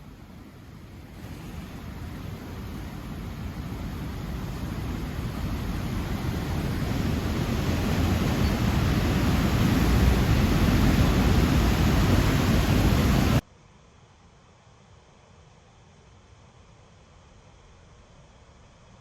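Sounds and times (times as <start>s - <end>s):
river rushing: 0.0s - 13.4s
faint hiss: 0.0s - 19.0s.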